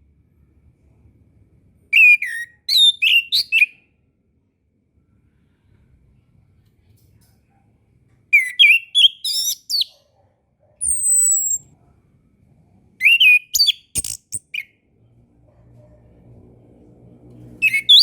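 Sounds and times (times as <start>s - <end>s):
thrush singing whistled notes: 2.0s - 3.8s, 8.4s - 9.9s, 10.8s - 11.7s, 13.0s - 14.7s, 17.6s - 18.0s.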